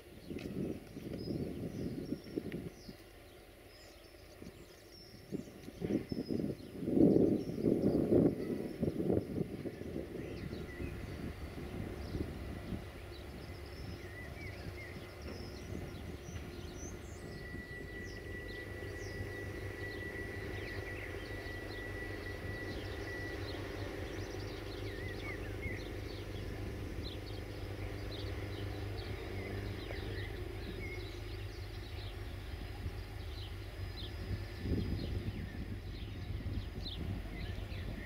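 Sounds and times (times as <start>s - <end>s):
low rumble and hum: 0.0s - 38.0s
small birds chirping: 0.0s - 38.0s
thin high tone: 10.5s - 35.5s.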